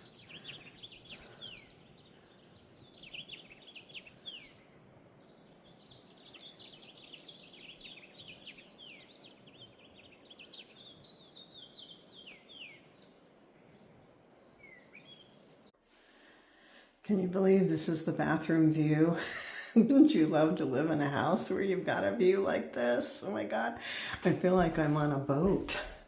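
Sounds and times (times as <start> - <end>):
small birds chirping: 0.0 - 15.8
faint outdoor hiss: 0.0 - 26.0.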